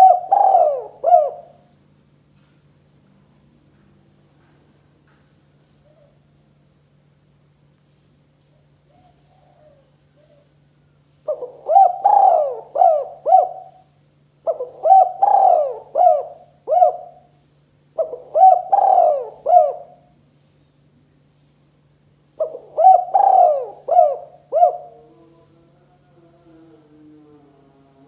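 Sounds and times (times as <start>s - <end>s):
dove cooing: 0.0s - 1.7s, 8.9s - 10.5s, 11.3s - 17.3s, 18.0s - 20.1s, 22.4s - 25.6s
faint low hum: 0.0s - 28.0s.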